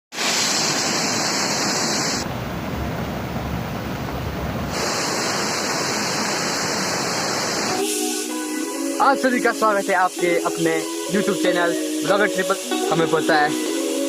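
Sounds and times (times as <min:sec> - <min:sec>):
waterfall rushing: 0:00.1 - 0:14.0.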